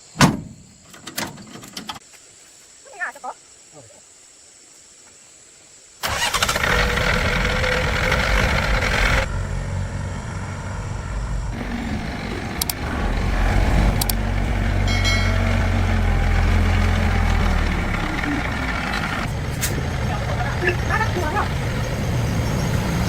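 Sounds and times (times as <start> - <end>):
heavy vehicle engine humming: 6.2 - 23.0
sharp clicks: 12.6 - 12.9, 13.9 - 14.2.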